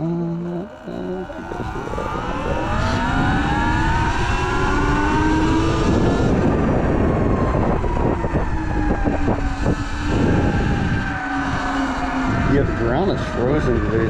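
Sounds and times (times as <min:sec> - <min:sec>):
heavy low rumble: 0:00.0 - 0:09.1
electric motorbike motor whining: 0:00.0 - 0:14.0.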